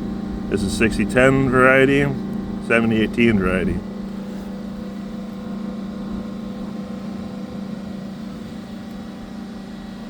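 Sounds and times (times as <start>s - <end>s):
machine humming: 0.0s - 5.3s.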